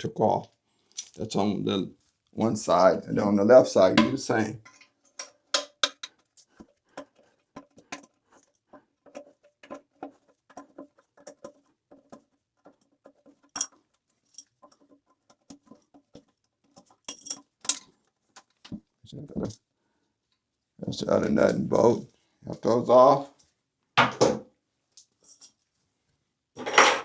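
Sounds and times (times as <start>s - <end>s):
metal tool clicks and taps: 5.2s - 6.1s.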